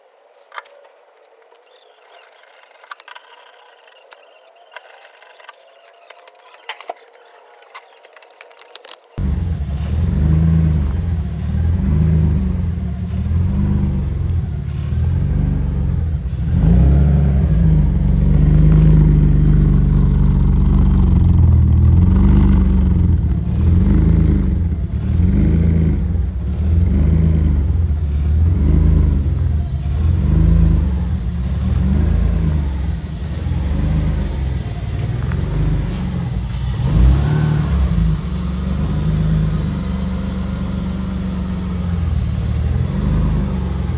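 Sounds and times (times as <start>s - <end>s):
car engine revving: 9.2s - 43.9s.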